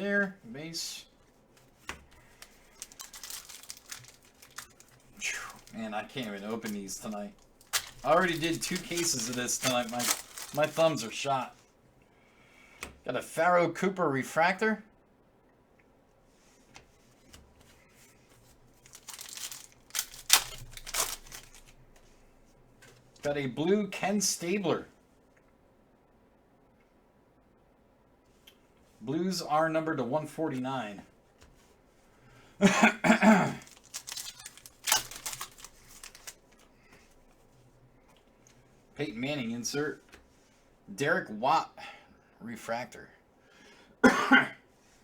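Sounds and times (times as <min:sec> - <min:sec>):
card pack wrapper crinkling: 0:02.1 - 0:11.2, 0:18.8 - 0:21.8, 0:33.5 - 0:36.7
wrapper ripping: 0:02.2 - 0:11.2, 0:18.8 - 0:21.8, 0:33.5 - 0:36.6.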